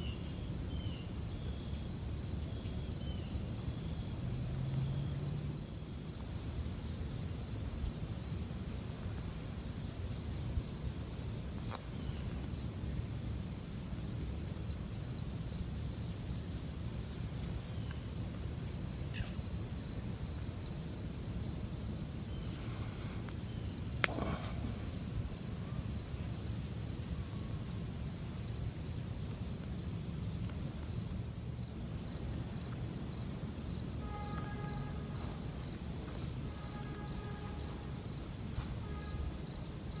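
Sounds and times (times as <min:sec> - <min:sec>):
crickets trilling: 0:00.0 - 0:40.0
sharp click: 0:24.0 - 0:24.5.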